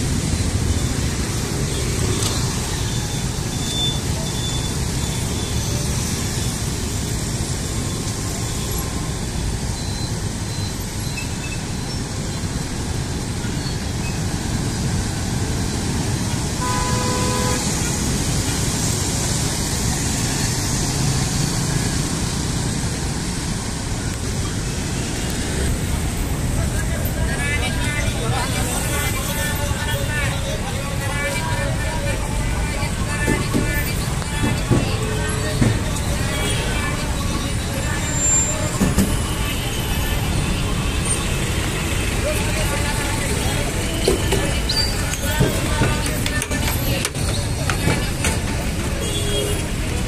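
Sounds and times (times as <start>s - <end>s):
busy street traffic: 0.0s - 50.0s
car horn honk: 16.6s - 17.7s.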